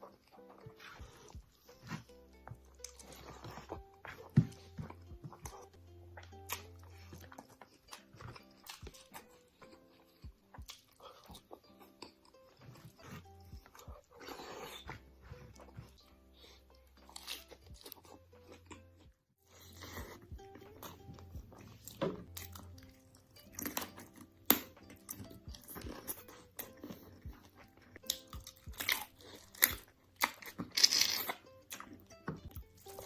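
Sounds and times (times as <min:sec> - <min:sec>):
crunchy food chewing: 0:00.0 - 0:33.0.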